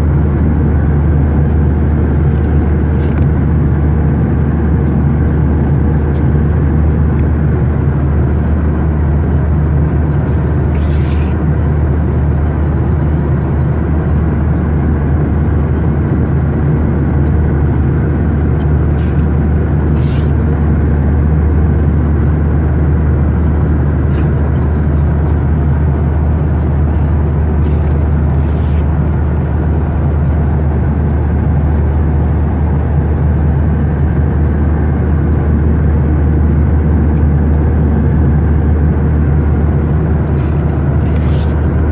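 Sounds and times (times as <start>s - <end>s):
airliner cabin engine drone: 0.0s - 41.9s.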